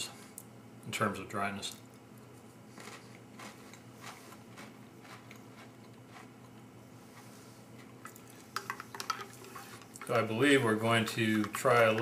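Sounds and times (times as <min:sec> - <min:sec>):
person chewing dry crackers: 0:02.2 - 0:08.7.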